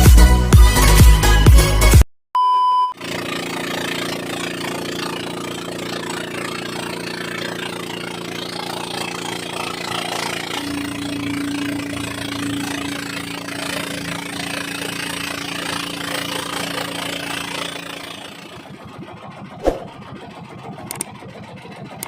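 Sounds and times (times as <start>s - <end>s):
short steady beep: 2.4s - 3.0s
boat engine idling: 3.0s - 22.0s
electronic intro music: 9.2s - 16.0s.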